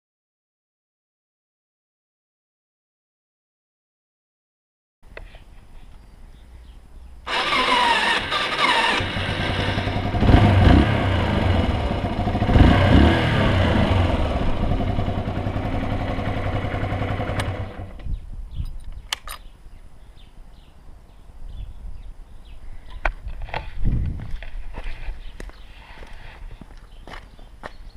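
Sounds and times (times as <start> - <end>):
motorcycle engine starting and revving: 7.3 - 18.1.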